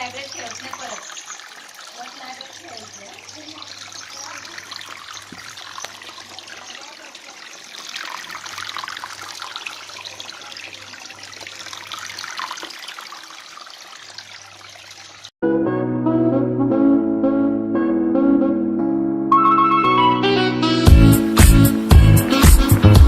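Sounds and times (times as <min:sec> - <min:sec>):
water splashing and trickling: 0:00.0 - 0:15.4.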